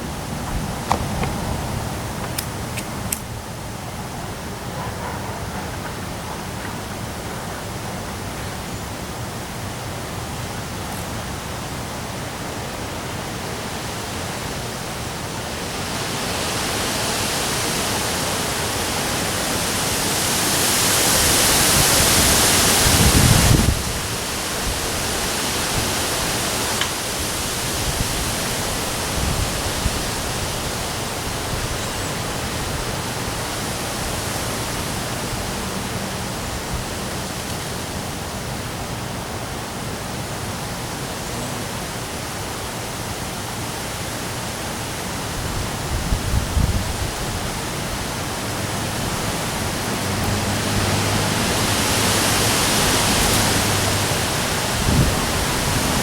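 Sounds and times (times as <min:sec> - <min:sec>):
wind buffeting microphone: 0:00.0 - 0:08.3, 0:21.1 - 0:37.9, 0:45.2 - 0:56.0
strong wind gusts: 0:00.0 - 0:41.0, 0:42.8 - 0:56.0
heavy rain: 0:00.0 - 0:56.0.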